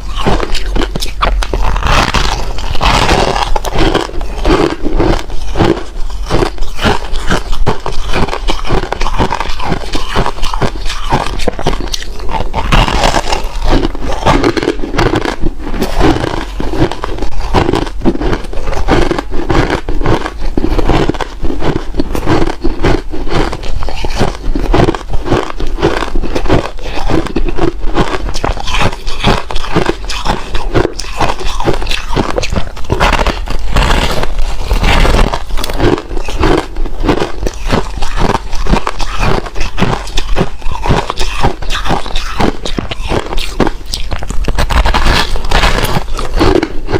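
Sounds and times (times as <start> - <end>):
ice being chewed: 0.0 - 46.9.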